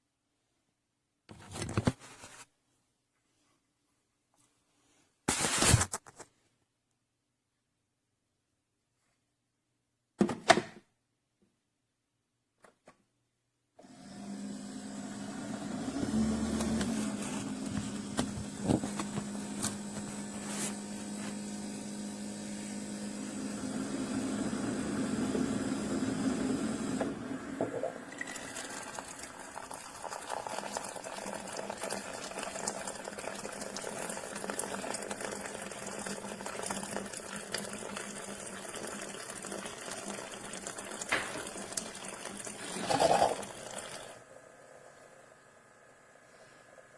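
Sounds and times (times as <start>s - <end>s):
coffee maker humming: 13.8s - 46.9s
coffee streaming and gurgling: 15.6s - 21.4s, 25.3s - 45.2s.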